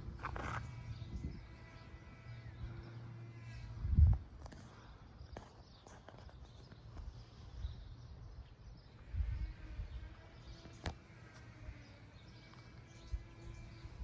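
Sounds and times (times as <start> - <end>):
wind rumble on microphone: 0.0 - 4.6, 7.0 - 11.0, 12.9 - 14.0
faint birds chirping: 0.0 - 14.0.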